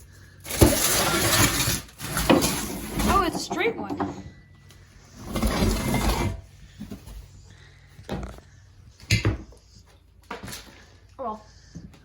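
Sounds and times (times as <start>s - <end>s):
debris scraping rustle: 0.4s - 3.7s.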